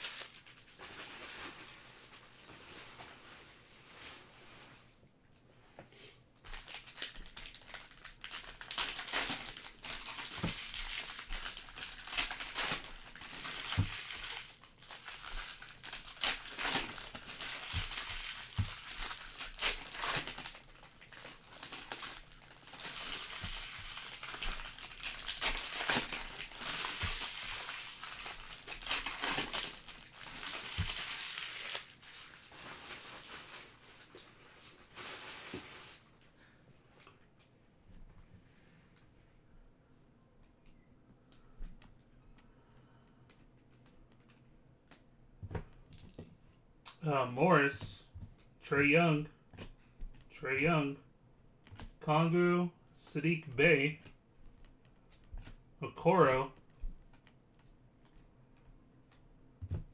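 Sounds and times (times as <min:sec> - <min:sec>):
card pack wrappers tearing and crinkling: 0:00.0 - 0:02.3, 0:06.4 - 0:36.1.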